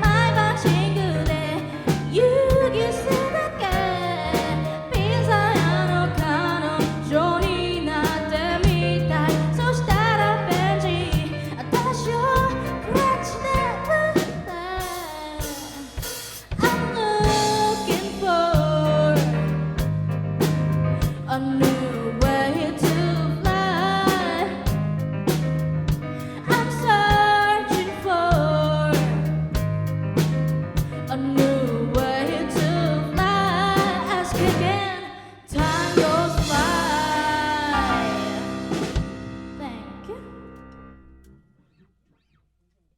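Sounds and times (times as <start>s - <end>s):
live band playing pop song: 32.0s - 34.8s, 35.6s - 39.5s
person singing: 33.4s - 39.0s.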